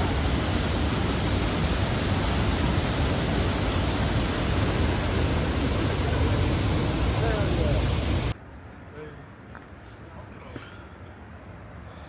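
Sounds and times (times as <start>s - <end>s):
waterfall roaring: 0.0s - 8.3s.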